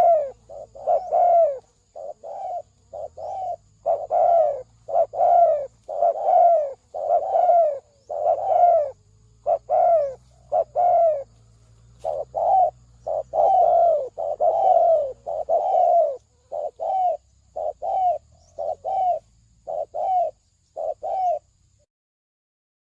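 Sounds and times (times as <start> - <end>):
dove cooing: 0.0 - 21.8.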